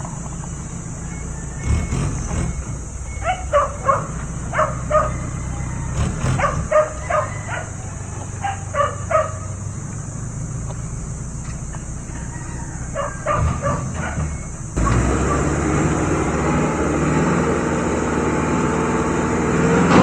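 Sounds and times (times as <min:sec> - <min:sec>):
dog barking: 0:03.1 - 0:09.6, 0:12.1 - 0:16.0.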